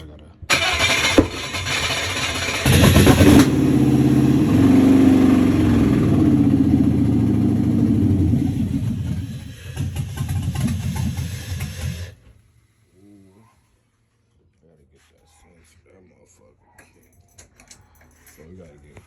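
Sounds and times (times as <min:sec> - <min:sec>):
truck engine sputtering: 0:00.5 - 0:12.2.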